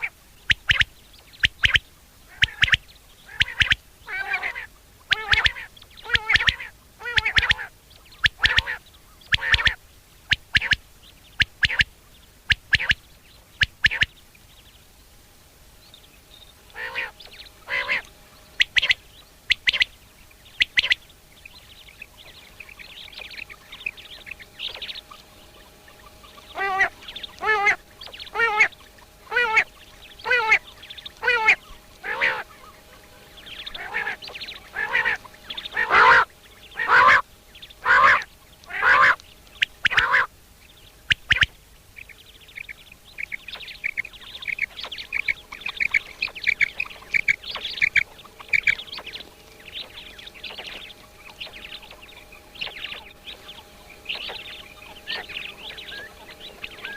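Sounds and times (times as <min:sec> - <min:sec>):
high bird chirps: 0:00.0 - 0:04.5, 0:05.1 - 0:11.9, 0:12.5 - 0:14.2, 0:16.1 - 0:56.9
bird honking calls: 0:00.0 - 0:13.0, 0:16.2 - 0:56.9.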